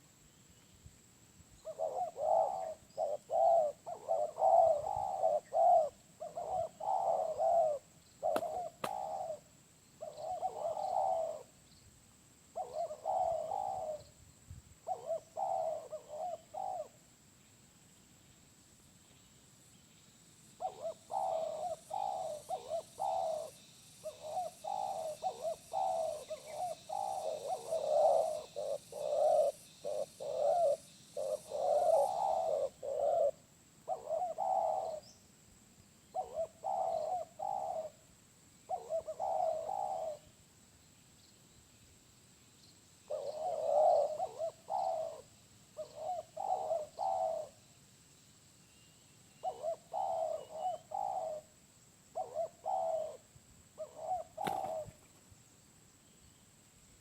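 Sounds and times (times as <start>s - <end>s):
dove cooing: 1.6s - 11.6s, 12.5s - 14.2s, 14.8s - 17.0s, 20.6s - 35.2s, 36.1s - 38.0s, 38.7s - 40.3s, 43.1s - 47.6s, 49.4s - 55.1s.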